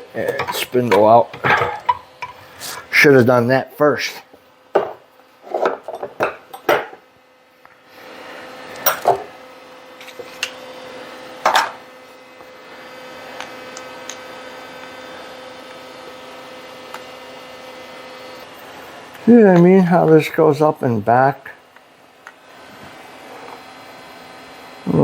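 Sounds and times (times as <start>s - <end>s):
steady hum: 0.0s - 25.0s
metal parts knocking and clanking: 0.2s - 2.4s.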